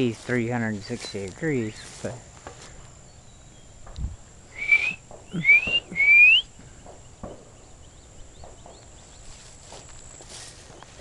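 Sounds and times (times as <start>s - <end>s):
faint distant bird notes: 0.0s - 11.0s
bird whistling rising notes: 4.5s - 6.6s.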